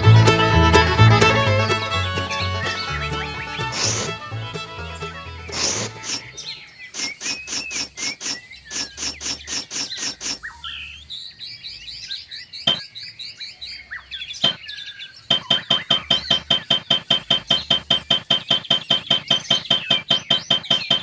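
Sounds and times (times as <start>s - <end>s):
birds chirping: 0.8s - 21.0s.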